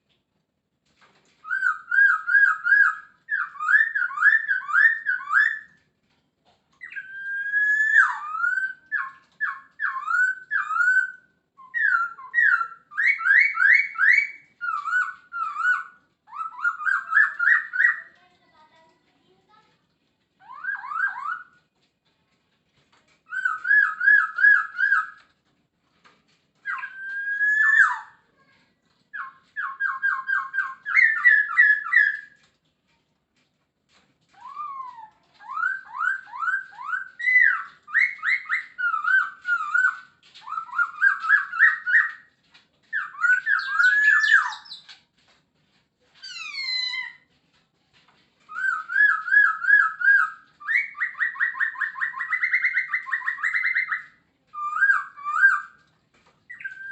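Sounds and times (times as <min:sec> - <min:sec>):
laughingthrush whistled song: 0:48.5 - 0:55.8.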